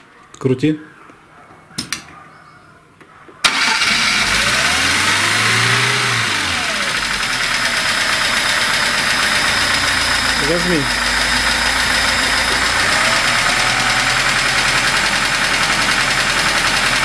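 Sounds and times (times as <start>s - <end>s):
car engine starting and running: 3.4s - 17.0s.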